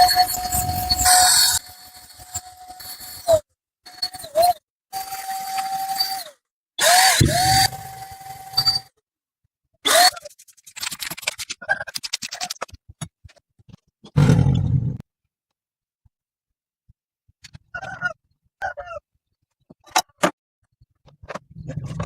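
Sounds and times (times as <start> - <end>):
power tool motor bursts: 5.6 - 8.8.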